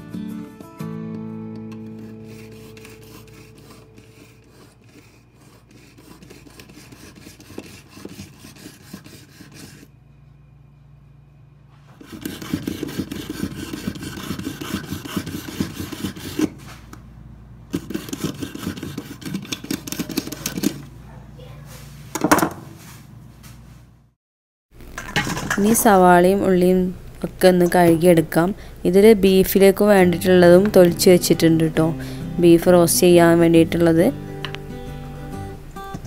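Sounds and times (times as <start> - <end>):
hand scraping and rubbing: 1.7 - 9.9, 11.7 - 17.0, 17.7 - 20.8, 21.7 - 24.0.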